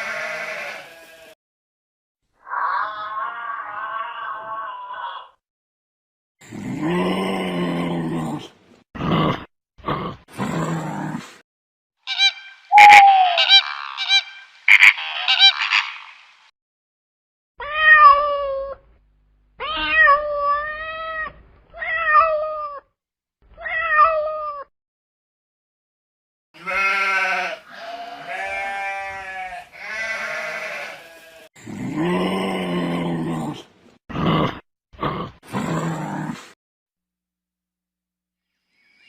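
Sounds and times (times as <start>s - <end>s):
animal calls: 12.1s - 16.4s
cat meowing: 17.6s - 18.8s, 19.6s - 22.8s, 23.6s - 24.7s.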